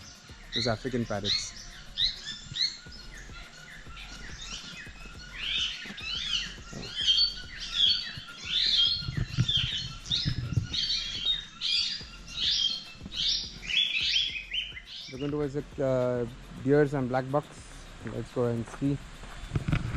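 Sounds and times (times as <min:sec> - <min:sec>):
parrots chattering and squawking: 0:00.0 - 0:15.2.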